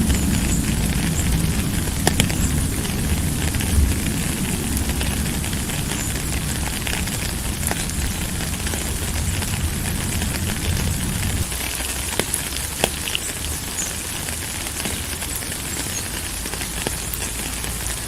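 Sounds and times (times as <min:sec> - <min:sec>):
deep low rumble: 0:00.0 - 0:13.6
rain drops ticking: 0:00.0 - 0:18.0
steady rain hiss: 0:00.0 - 0:18.0.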